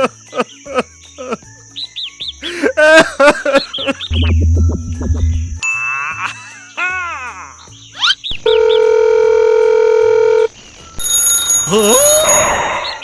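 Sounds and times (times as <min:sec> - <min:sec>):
steady buzzer tone: 0:04.1 - 0:05.8
high sparkling shimmer: 0:04.1 - 0:06.8.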